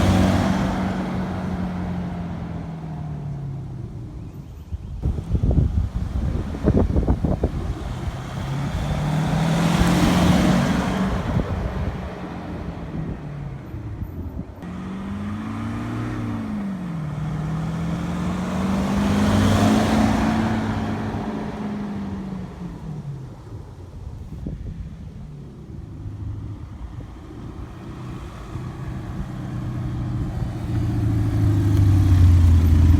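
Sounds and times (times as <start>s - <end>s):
pickup truck driving past: 27.5s - 32.9s.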